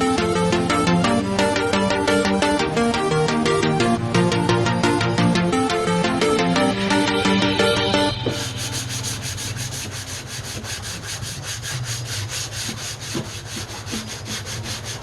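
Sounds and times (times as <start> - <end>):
background music: 0.0 - 9.8
sandpaper rubbing on filler: 8.2 - 15.0.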